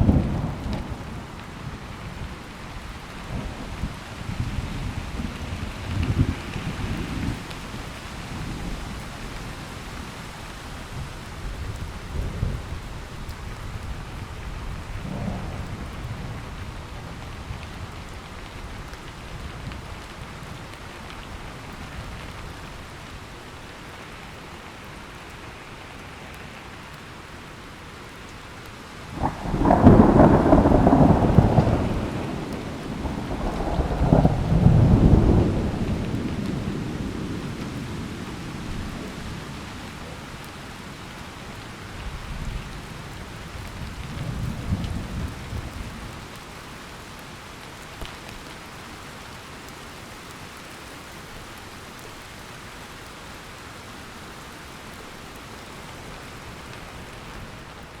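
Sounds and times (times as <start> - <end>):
thunder rumbling: 0.0 - 9.5, 11.5 - 18.2, 29.1 - 40.2
heavy rain: 0.0 - 58.0
loud thunderclap: 29.2 - 37.2.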